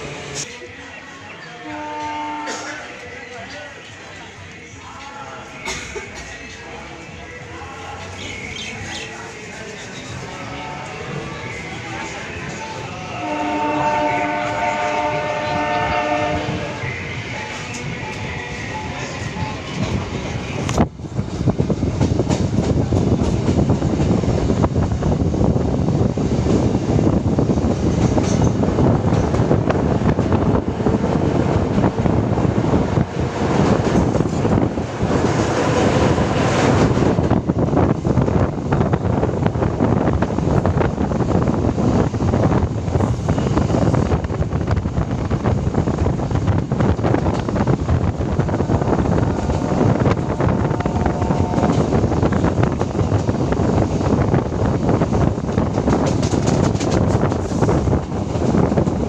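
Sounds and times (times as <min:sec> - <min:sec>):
train wheels rumbling on track: 0:02.2 - 0:59.0
wind buffeting microphone: 0:19.2 - 0:59.0.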